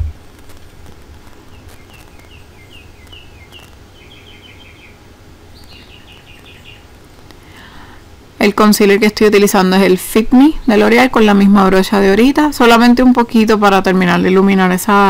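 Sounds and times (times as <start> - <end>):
steady low hum: 0.0 - 15.0
songbird chirping and trilling: 1.5 - 6.9, 10.5 - 11.5.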